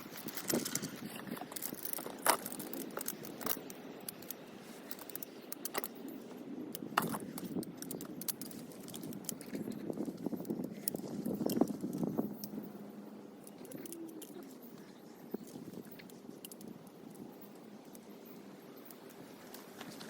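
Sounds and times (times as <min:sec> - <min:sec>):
gear clinking and knocking: 0:00.0 - 0:06.2
soft rustle: 0:00.0 - 0:06.4.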